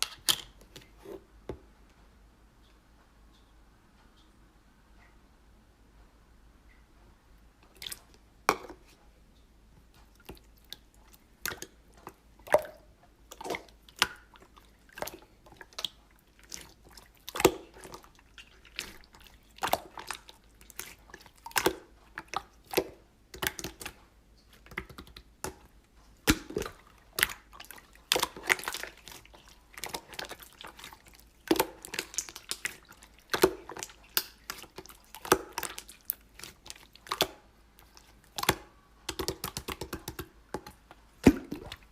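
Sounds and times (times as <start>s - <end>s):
slime squished by hand: 12.5s - 41.9s.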